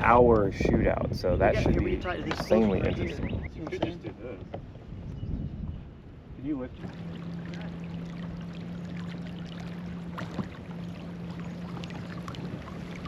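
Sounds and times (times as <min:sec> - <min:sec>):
water splashing along hull: 0:00.0 - 0:13.0.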